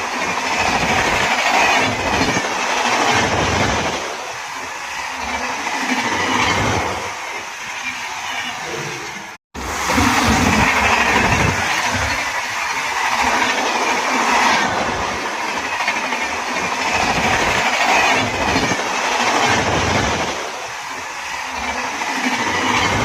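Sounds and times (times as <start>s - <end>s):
wheels knocking on rail joints: 0.0s - 8.0s, 9.7s - 23.0s
train wheels rushing on rail: 0.0s - 23.0s.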